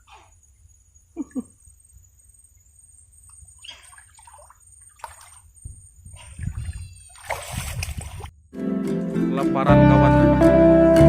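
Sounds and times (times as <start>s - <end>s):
faint water sloshing and splashing: 3.3s - 8.4s.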